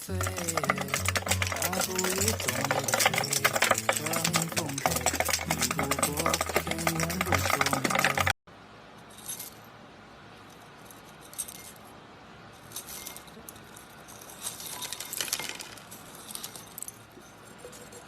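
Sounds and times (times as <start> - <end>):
crisp clicks and crackles: 0.0 - 8.4, 12.8 - 18.0.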